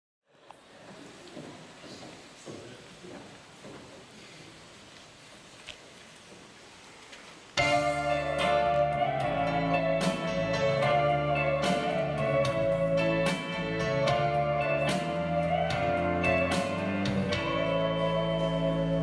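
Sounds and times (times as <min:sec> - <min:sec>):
plucked guitar notes: 0:07.6 - 0:19.0
sustained bass and chords: 0:07.6 - 0:19.0.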